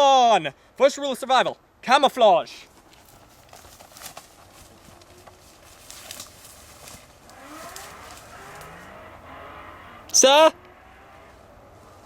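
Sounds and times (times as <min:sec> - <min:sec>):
small clicks and crackles: 0:02.8 - 0:08.8.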